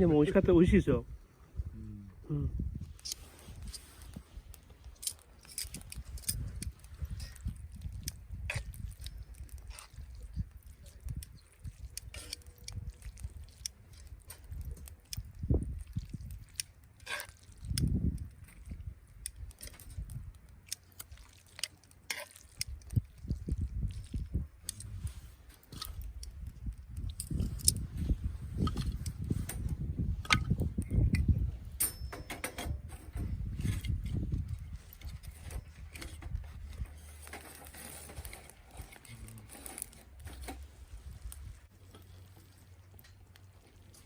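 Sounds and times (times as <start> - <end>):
person chewing: 2.8 - 27.9.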